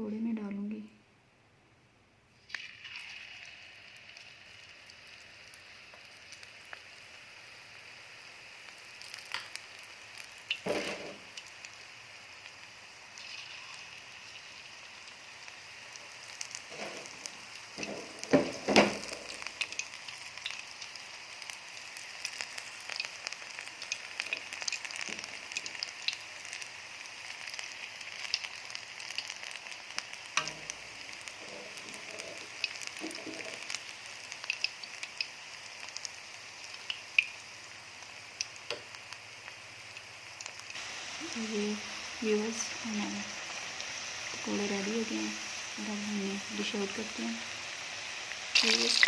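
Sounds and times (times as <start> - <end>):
deep-frying sizzle with crackling: 2.4 - 49.0
knocks: 17.8 - 19.0.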